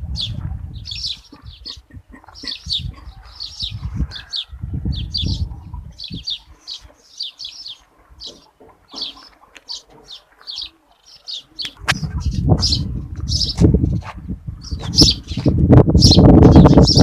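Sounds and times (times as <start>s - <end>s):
small birds chirping: 0.1s - 17.0s
low rumbling noise: 11.8s - 17.0s.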